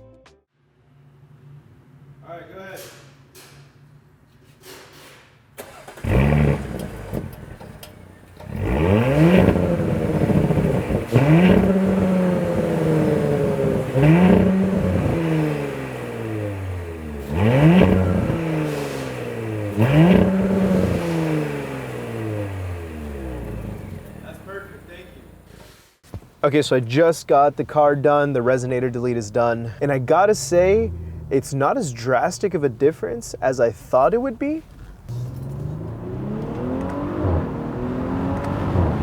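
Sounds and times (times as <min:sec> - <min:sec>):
car engine revving: 0:05.6 - 0:25.7, 0:28.4 - 0:33.6, 0:34.7 - 0:39.0.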